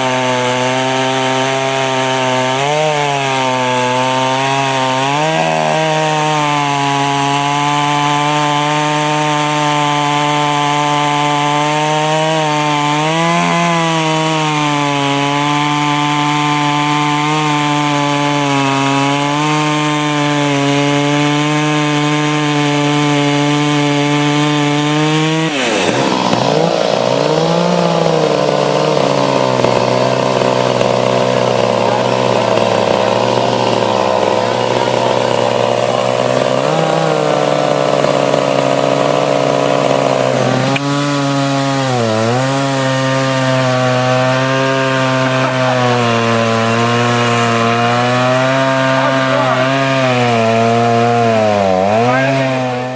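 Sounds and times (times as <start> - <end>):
two-stroke chainsaw running: 0.0 - 52.9.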